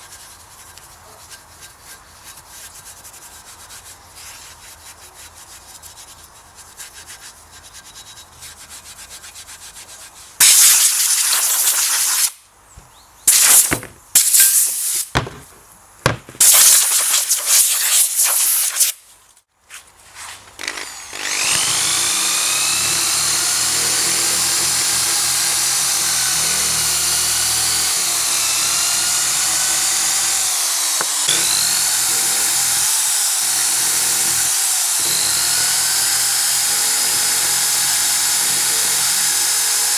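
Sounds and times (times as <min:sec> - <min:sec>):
high-speed power tool whine: 0:13.3 - 0:14.0, 0:20.6 - 0:39.9
harsh abrasive hissing: 0:13.3 - 0:19.0.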